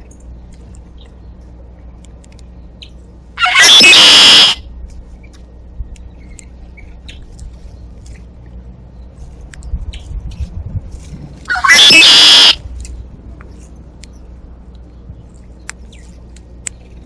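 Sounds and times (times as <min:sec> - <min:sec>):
blackbird harsh buzzy song: 0:02.8 - 0:04.6, 0:11.5 - 0:12.6.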